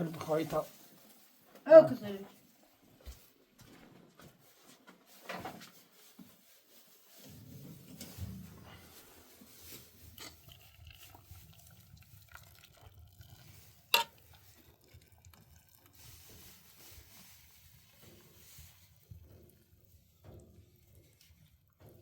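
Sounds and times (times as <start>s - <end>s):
stirring liquid in a pot: 7.1s - 22.0s.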